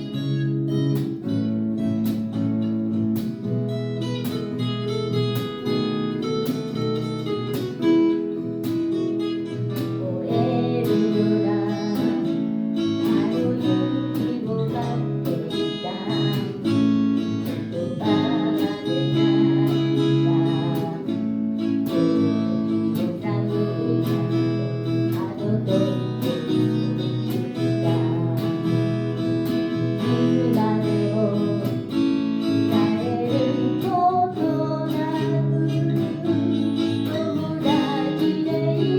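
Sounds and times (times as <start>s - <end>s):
acoustic guitar music: 0.0s - 38.9s
person singing: 9.4s - 38.9s.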